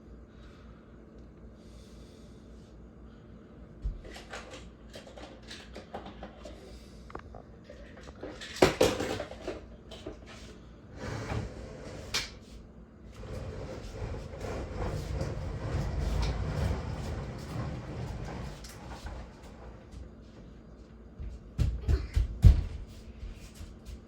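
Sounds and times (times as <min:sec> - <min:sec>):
cupboard knocks and clatter: 0:08.6 - 0:09.5, 0:21.6 - 0:22.9.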